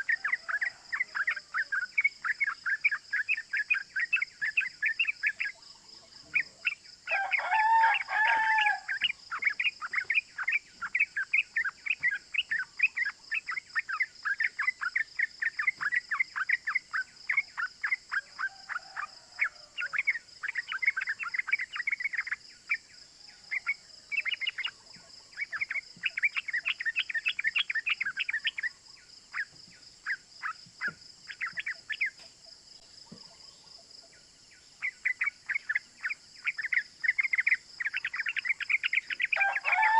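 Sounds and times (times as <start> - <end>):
high insect drone: 0.0 - 22.7
rooster crowing: 7.1 - 9.1, 18.4 - 20.0, 39.3 - 39.9
bulbul chirping: 34.8 - 39.7.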